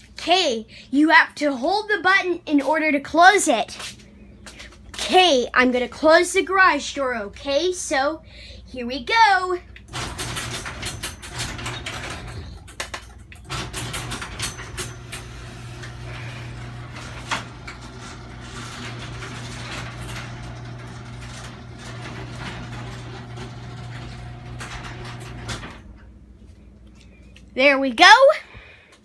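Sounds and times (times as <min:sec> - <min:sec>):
garage door opener motor hum: 0:09.8 - 0:26.3
chain and door rattling: 0:09.9 - 0:26.0.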